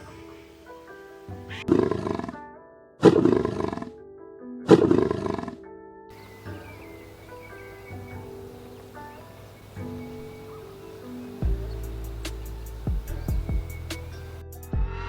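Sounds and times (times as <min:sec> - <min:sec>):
background music: 0:00.0 - 0:15.0
loud animal roars: 0:01.5 - 0:02.4, 0:03.0 - 0:04.0, 0:04.7 - 0:05.6.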